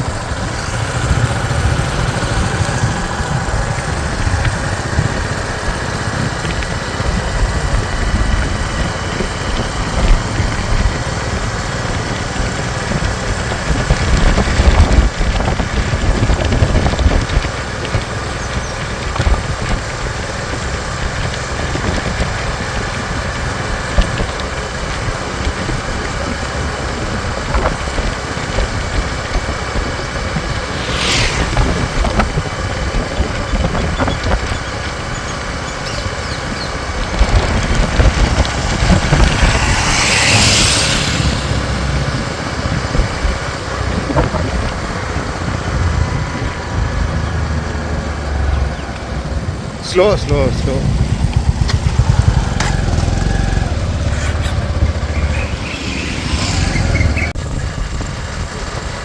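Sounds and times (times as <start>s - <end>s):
rushing sound: 0.0s - 5.9s, 30.2s - 33.0s, 37.3s - 43.2s, 50.6s - 57.4s
motorcycle engine running: 0.0s - 59.0s
road noise: 0.0s - 59.0s
brief hiss: 30.5s - 32.6s, 39.0s - 42.5s.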